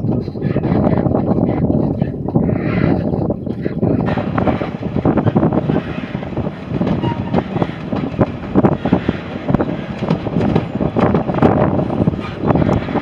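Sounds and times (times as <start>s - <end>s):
train rumbling: 0.0s - 13.0s
wind buffeting microphone: 0.0s - 13.0s.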